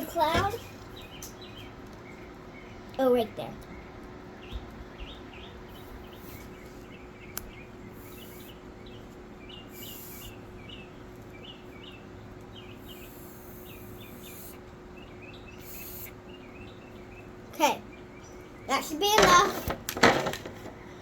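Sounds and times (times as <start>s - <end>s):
small bird chirping: 0.0s - 19.2s
faint steady hum: 0.0s - 21.0s
short high hissing bursts: 8.0s - 8.6s, 9.7s - 10.4s, 12.8s - 14.6s, 15.6s - 16.2s.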